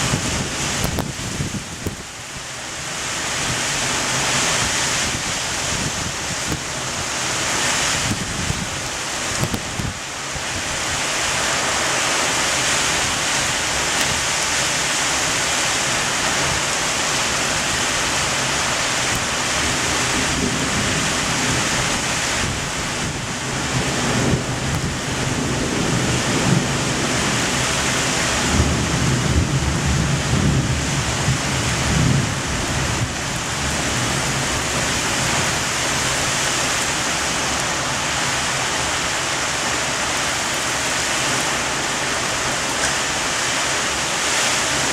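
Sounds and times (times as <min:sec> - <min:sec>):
heavy rain pouring: 0:00.0 - 0:44.9
thunder rumbling: 0:15.2 - 0:38.1.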